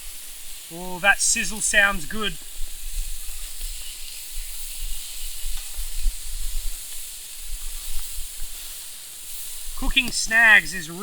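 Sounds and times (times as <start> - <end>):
sausages sizzling: 0.0 - 11.0
wind rumble on microphone: 2.4 - 8.6.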